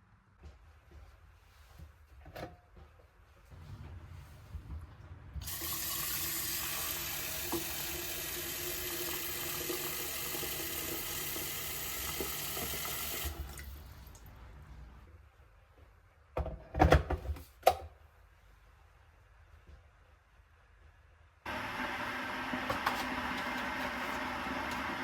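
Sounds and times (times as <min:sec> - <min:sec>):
water tap running: 0:05.4 - 0:14.2, 0:21.5 - 0:25.0.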